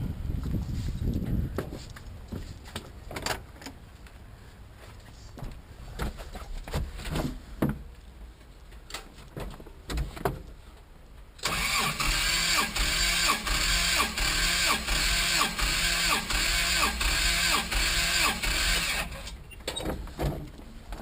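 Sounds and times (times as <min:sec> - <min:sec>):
starter motor cranking engine: 0:11.4 - 0:19.4.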